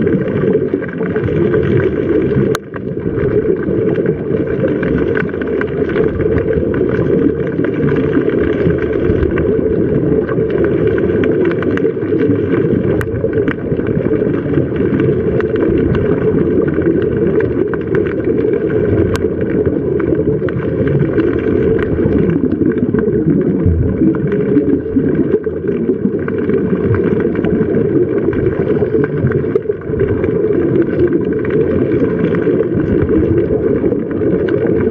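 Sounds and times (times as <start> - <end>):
low motor rumble: 21.6 - 26.0.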